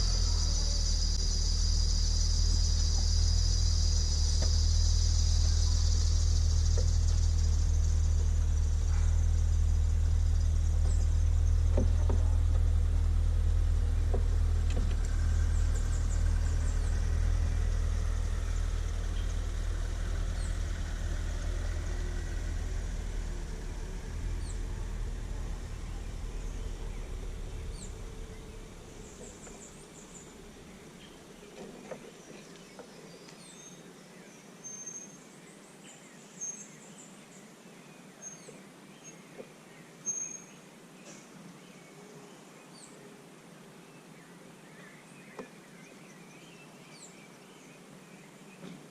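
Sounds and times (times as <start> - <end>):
high bird chirps: 0.0 - 12.4, 13.8 - 31.2
vehicle engine hum: 0.0 - 33.0.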